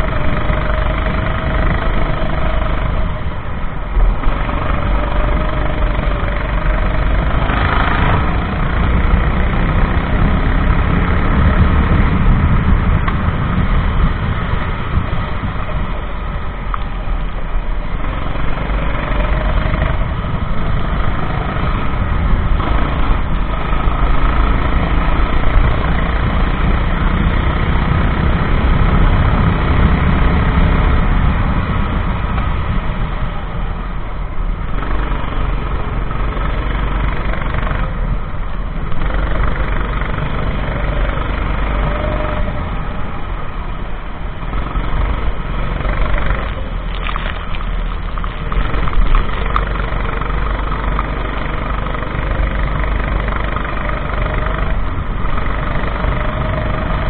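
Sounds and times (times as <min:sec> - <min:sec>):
kart engine revving: 0:00.0 - 0:57.0
wind rumble on microphone: 0:00.0 - 0:57.0.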